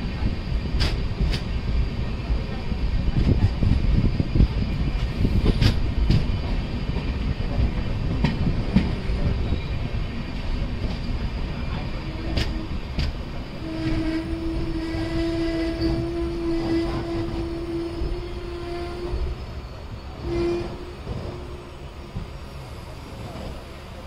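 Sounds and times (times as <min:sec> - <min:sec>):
train wheels rumbling on rails: 0:00.0 - 0:24.0
locomotive horn long note: 0:13.6 - 0:19.4, 0:20.2 - 0:21.7.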